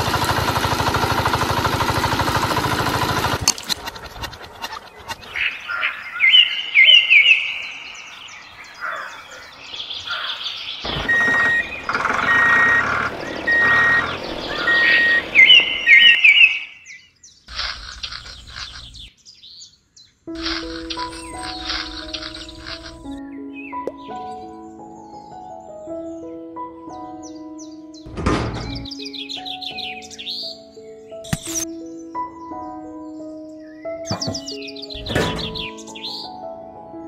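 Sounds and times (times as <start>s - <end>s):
birds chirping: 4.0s - 36.4s
short piping bird notes: 10.0s - 19.1s.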